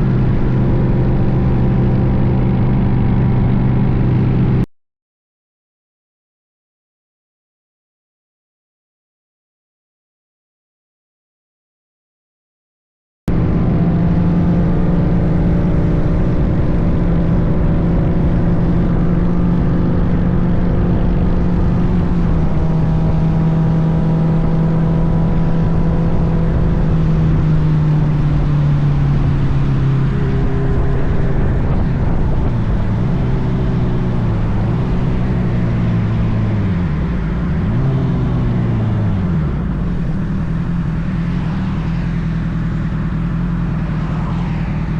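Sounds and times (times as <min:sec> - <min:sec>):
motorcycle engine running: 0:00.0 - 0:04.7, 0:13.3 - 0:44.9
wind rushing on microphone: 0:13.3 - 0:42.3.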